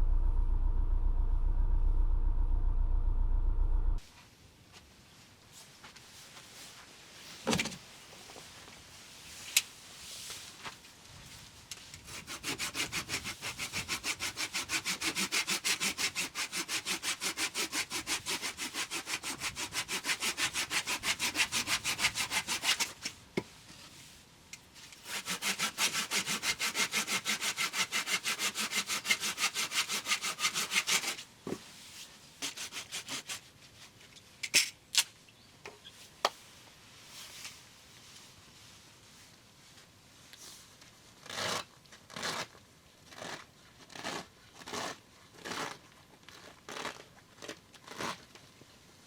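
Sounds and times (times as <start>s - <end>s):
hand saw cutting wood: 12.0s - 23.0s, 25.0s - 31.2s, 32.4s - 33.4s, 41.3s - 42.5s, 43.1s - 45.8s, 47.9s - 48.2s.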